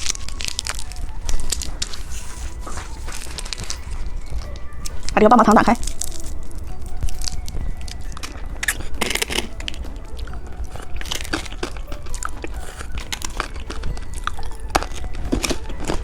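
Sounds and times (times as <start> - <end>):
hard candy crunching: 0.0 - 5.2, 5.8 - 16.0
low hum: 0.0 - 16.0.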